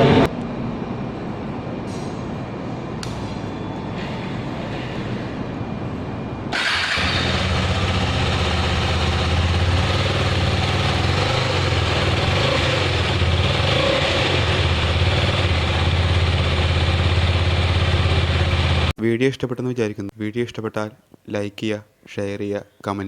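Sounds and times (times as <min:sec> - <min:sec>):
motorcycle engine starting and running: 0:06.5 - 0:18.9.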